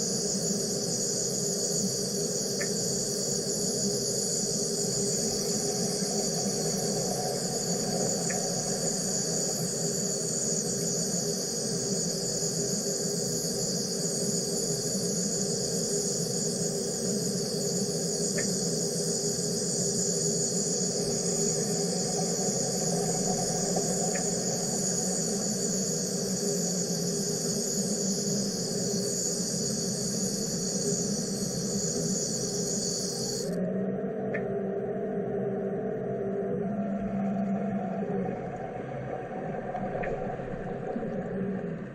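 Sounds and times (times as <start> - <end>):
high-pitched buzzing hiss: 0.0 - 33.6
faint ticks: 2.5 - 2.8, 8.2 - 8.5, 18.3 - 18.6.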